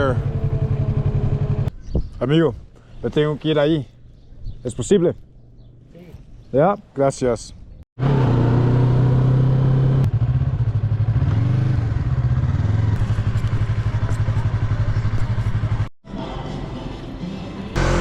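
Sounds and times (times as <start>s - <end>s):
motorcycle engine running: 0.0s - 1.7s, 8.0s - 15.9s, 17.8s - 18.0s.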